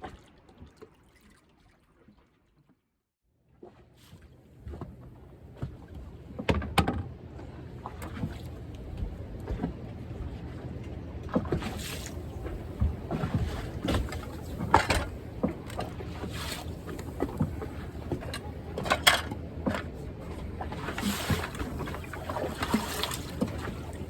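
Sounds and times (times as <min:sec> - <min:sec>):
water splashing against yacht: 0:00.0 - 0:02.8, 0:03.4 - 0:24.0
knocks and clunks: 0:06.4 - 0:07.2, 0:12.5 - 0:16.0.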